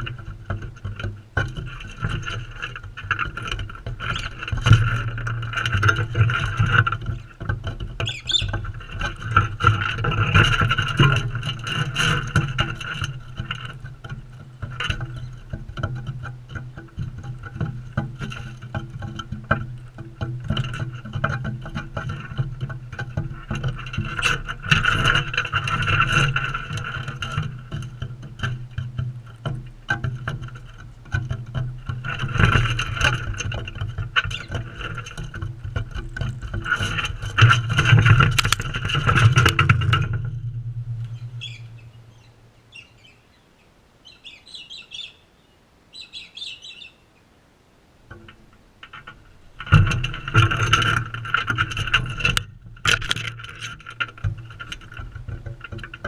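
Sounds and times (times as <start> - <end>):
parrots clicking and scratching: 0.0 - 42.5, 48.1 - 56.0
high bird chirps: 8.0 - 8.6, 41.1 - 47.2.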